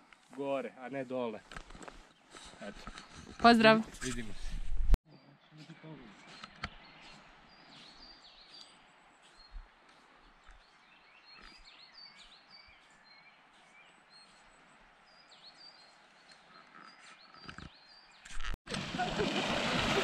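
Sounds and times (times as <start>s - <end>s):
small birds chirping: 5.1s - 18.6s.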